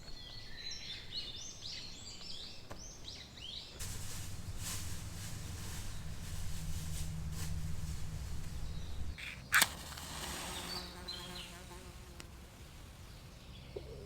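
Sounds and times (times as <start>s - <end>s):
low outdoor rumble: 3.8s - 10.0s.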